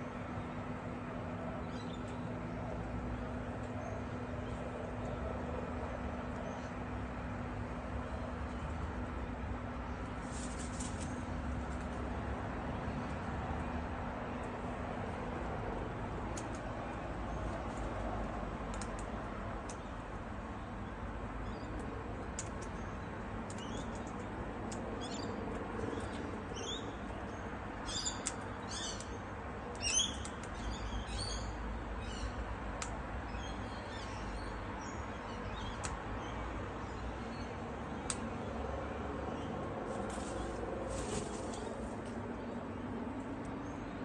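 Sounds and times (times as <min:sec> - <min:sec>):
small birds chirping: 0:18.7 - 0:38.6.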